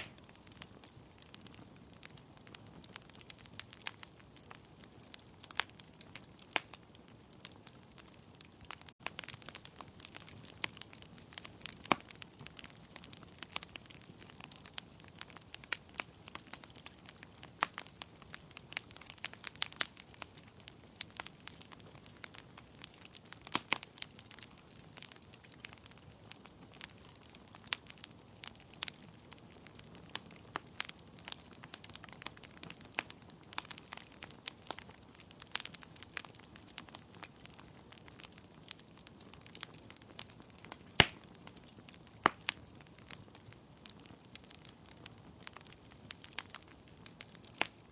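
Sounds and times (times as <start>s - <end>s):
logs crackling and popping: 0.0s - 47.9s
low steady fire hiss: 0.0s - 47.9s.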